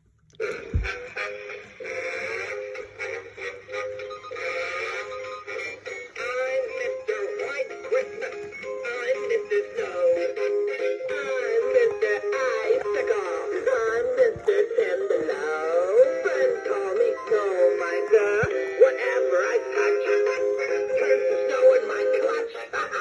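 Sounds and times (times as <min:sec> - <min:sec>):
toy singing through small speaker: 0:00.4 - 0:23.0.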